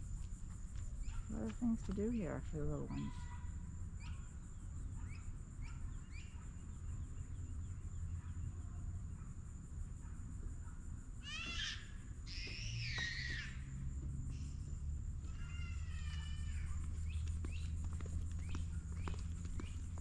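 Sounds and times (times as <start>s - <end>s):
birds chirping: 0.8s - 9.2s, 14.3s - 20.0s.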